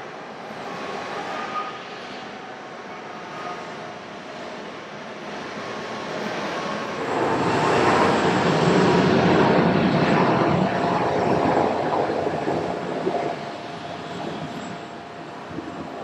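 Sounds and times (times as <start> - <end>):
jet airliner passing: 5.2 - 16.0.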